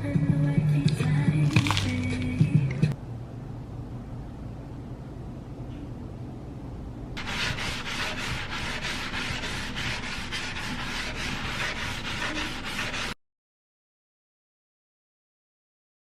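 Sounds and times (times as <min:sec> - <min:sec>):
rhythmic scraping strokes: 0:07.2 - 0:13.2.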